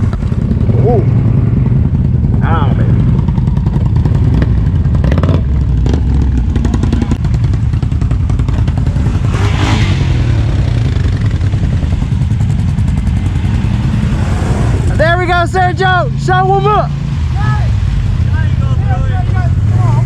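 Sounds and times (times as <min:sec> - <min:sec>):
atv engine running: 0:00.0 - 0:20.0.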